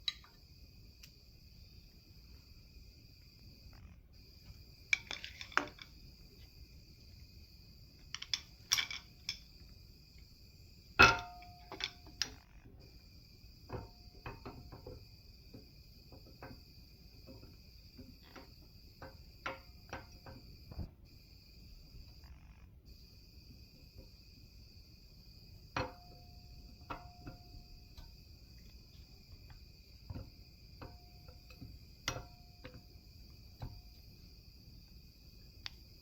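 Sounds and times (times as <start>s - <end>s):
crickets trilling: 0.0s - 36.0s
metal tools clinking and clanking: 5.0s - 5.9s, 8.2s - 9.4s, 11.0s - 12.4s.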